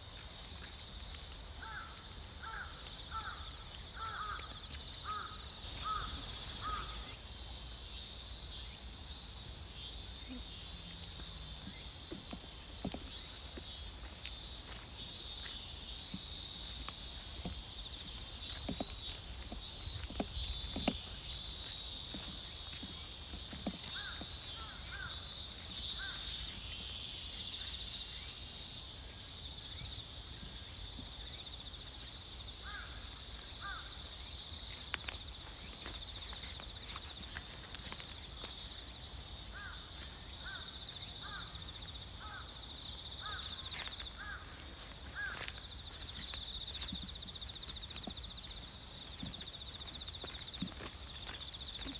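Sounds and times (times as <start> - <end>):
footsteps on path: 0.0 - 7.0, 11.1 - 27.8, 34.4 - 38.9, 43.2 - 51.9
insects chirring chorus: 0.0 - 51.9
crows cawing: 1.6 - 7.1, 32.6 - 33.0, 33.6 - 33.9, 40.4 - 41.6, 43.2 - 43.6, 44.2 - 45.5.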